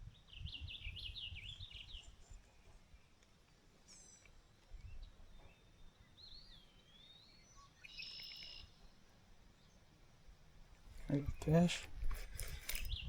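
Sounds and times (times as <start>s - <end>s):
songbird calls: 0.1s - 3.2s, 3.8s - 9.9s.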